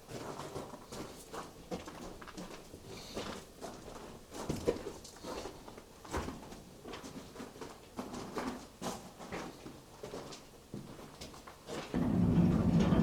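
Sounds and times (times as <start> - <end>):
footsteps crunching on rubble: 0.0 - 13.0.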